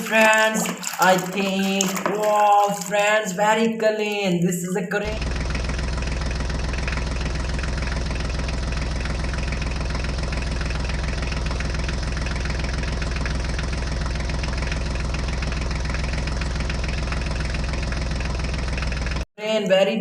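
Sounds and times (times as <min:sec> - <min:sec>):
motor humming: 0:05.1 - 0:19.2.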